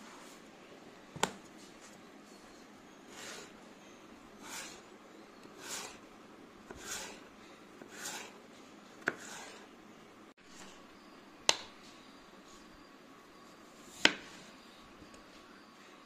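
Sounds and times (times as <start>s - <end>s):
knife slicing potato: 4.4s - 4.9s, 5.5s - 6.0s, 6.7s - 8.4s, 9.0s - 9.7s.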